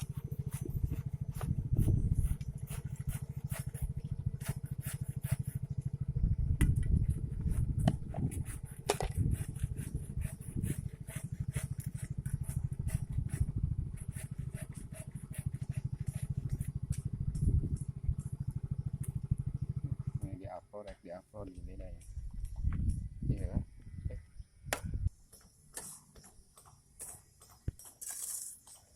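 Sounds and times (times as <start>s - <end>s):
small engine running: 0.0s - 20.6s.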